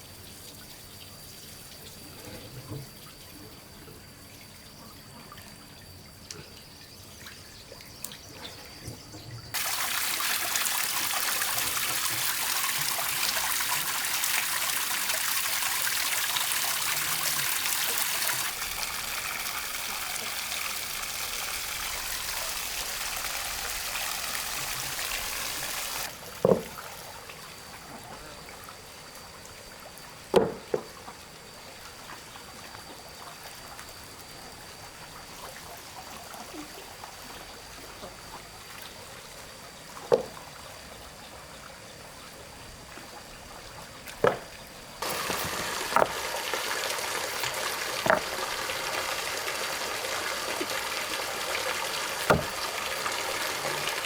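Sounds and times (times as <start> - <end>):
water running and pouring: 9.6 - 26.8, 45.0 - 54.0
sharp knocks: 48.0 - 48.3, 52.3 - 52.6.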